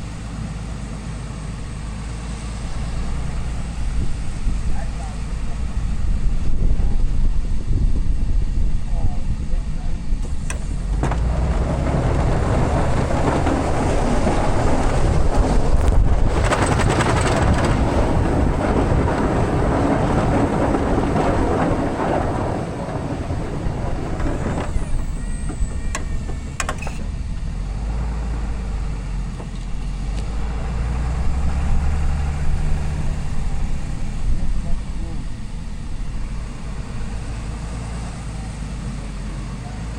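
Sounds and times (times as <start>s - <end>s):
diesel truck engine running: 0.0s - 39.9s
broad rushing noise: 1.5s - 26.9s.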